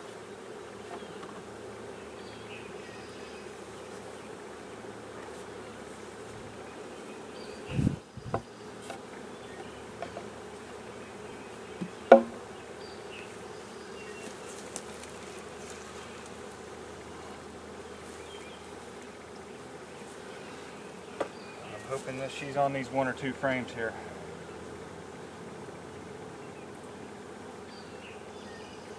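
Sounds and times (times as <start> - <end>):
bee swarm buzzing: 0.0 - 28.9
sharp knock: 12.1 - 12.4.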